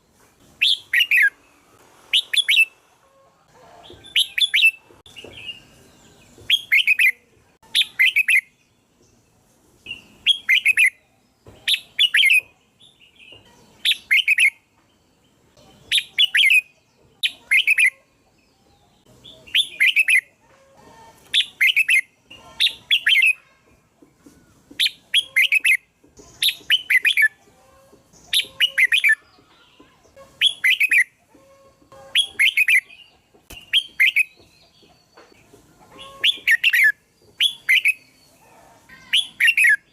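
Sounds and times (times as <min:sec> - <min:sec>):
bulbul singing: 0:03.9 - 0:09.3, 0:09.9 - 0:20.4, 0:21.2 - 0:23.7, 0:24.8 - 0:39.9.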